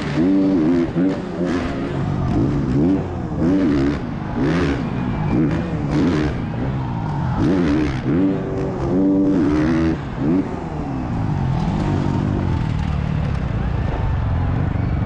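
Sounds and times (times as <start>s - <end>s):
motocross bike engine revving: 0.0s - 13.4s.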